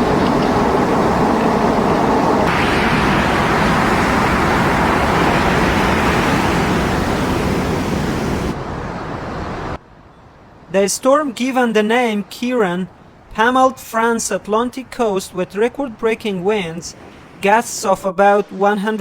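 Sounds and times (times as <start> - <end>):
strong wind on microphone: 0.0 - 9.8.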